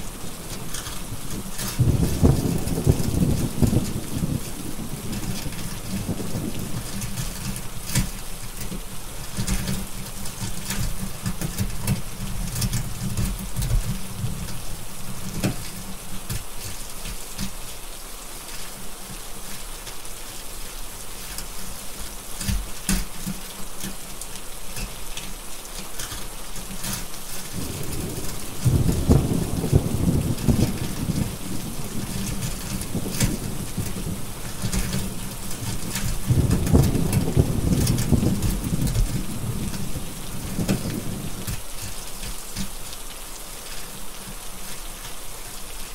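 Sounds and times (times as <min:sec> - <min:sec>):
heavy rain: 0:00.0 - 0:45.9
thunder rumbling: 0:00.4 - 0:07.0, 0:27.5 - 0:41.6.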